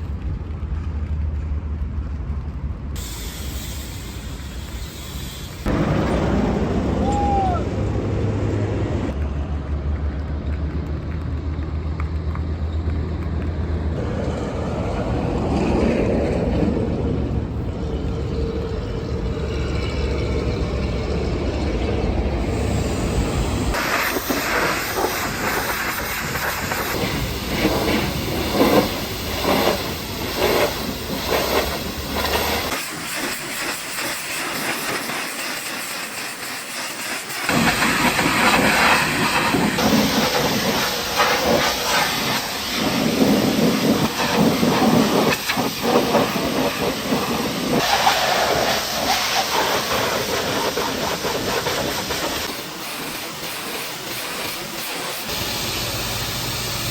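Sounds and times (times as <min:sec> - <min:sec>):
pressure washer water jet hissing: 0:03.0 - 0:06.7, 0:22.4 - 0:56.9.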